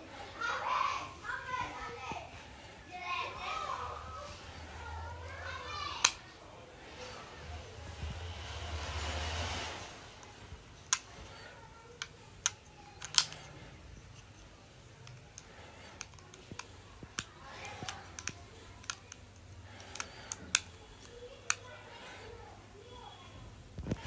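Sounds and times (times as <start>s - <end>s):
plastic clicks and taps: 12.0s - 13.6s, 15.0s - 21.7s.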